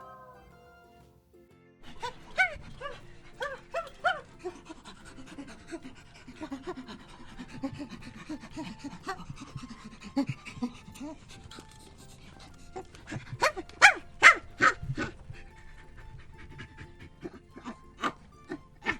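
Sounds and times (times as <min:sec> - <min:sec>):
animal calling: 0:00.0 - 0:00.7, 0:01.8 - 0:18.9.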